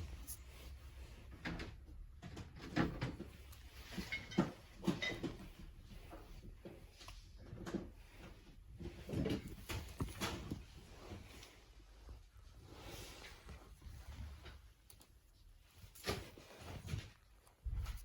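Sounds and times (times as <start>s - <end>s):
objects clacking and knocking: 1.2s - 11.2s.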